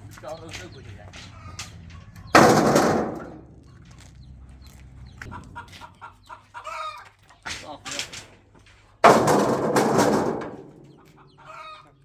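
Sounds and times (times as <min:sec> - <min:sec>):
loud crash: 0:02.3 - 0:03.6, 0:09.0 - 0:11.0.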